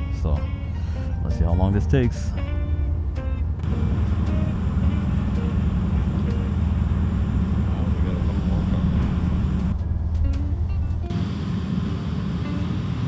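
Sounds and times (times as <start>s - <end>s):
engine idling: 3.6s - 13.0s.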